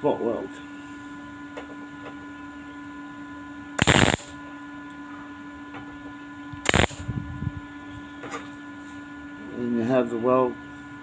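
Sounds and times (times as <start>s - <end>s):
electrical hum: 0.0s - 11.0s
welding arc burst: 3.8s - 4.4s, 6.6s - 7.1s.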